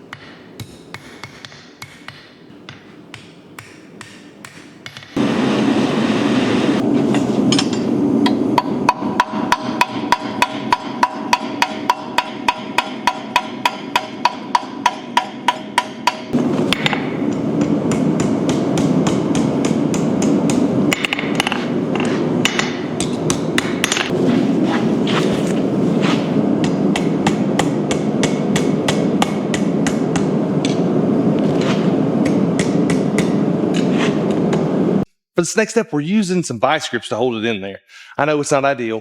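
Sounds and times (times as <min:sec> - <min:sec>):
hammer striking steel on anvil: 0:07.1 - 0:24.2, 0:26.6 - 0:30.8, 0:32.2 - 0:33.5.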